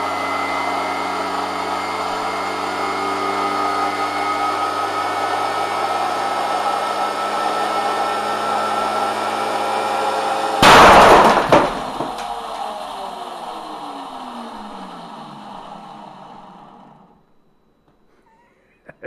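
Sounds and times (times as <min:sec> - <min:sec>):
record bursting with a bang: 0:10.6 - 0:12.4
sharp crack: 0:10.6 - 0:12.7.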